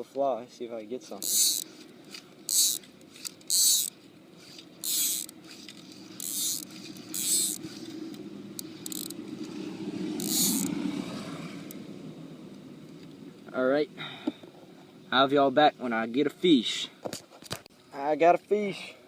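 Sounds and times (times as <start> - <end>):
low drone: 3.4 - 14.3
fly line hissing through rod: 3.5 - 10.7.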